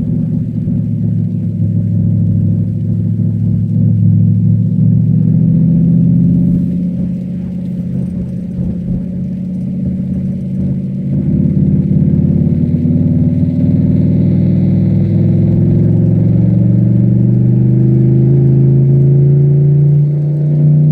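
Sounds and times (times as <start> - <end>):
car engine under load: 0.0 - 20.9.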